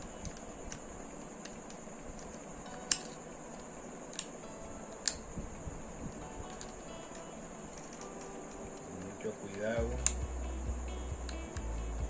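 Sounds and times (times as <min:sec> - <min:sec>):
blade clicking through plastic: 0:00.0 - 0:04.4.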